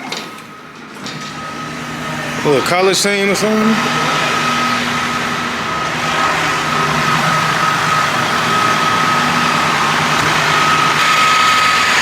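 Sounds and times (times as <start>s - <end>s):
vehicle engine idling: 3.8s - 11.3s.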